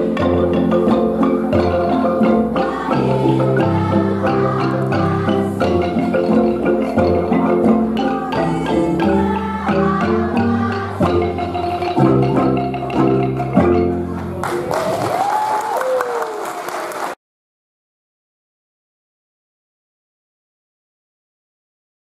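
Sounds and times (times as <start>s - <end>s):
wooden xylophone ensemble playing: 0.0s - 15.4s
applause: 14.2s - 17.2s.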